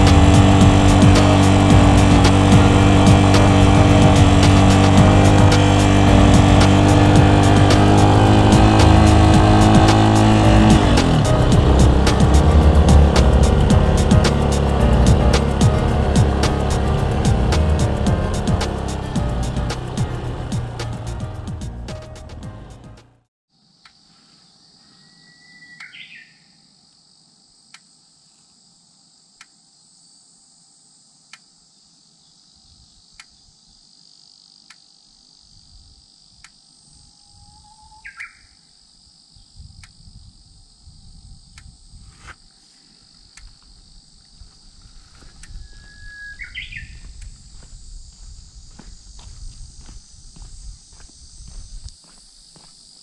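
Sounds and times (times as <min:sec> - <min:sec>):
high insect drone: 0:00.0 - 0:22.6, 0:23.5 - 0:53.0
low rumble: 0:00.0 - 0:22.7
birds whistling calls: 0:24.9 - 0:26.5, 0:37.2 - 0:38.6, 0:45.5 - 0:47.2.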